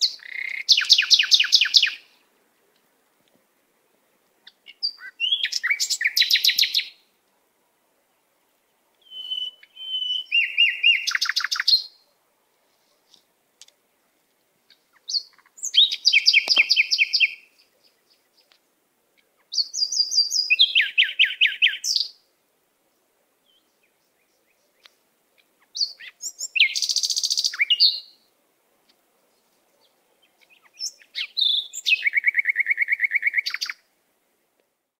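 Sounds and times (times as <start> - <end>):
songbird trilling: 0.0 - 2.1, 4.4 - 7.0, 9.0 - 12.0, 14.7 - 18.6, 19.2 - 22.2, 25.6 - 28.2, 30.2 - 33.8.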